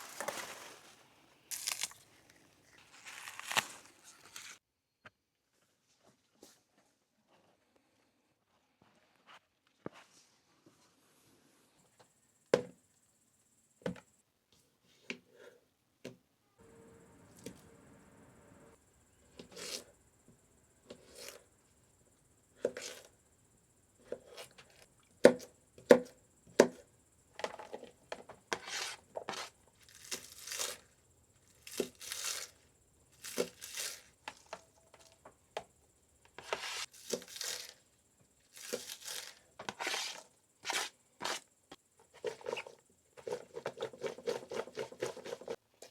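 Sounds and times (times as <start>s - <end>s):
scraping and tearing strokes: 0.0s - 4.6s, 28.5s - 30.9s, 36.4s - 37.8s, 38.5s - 41.5s.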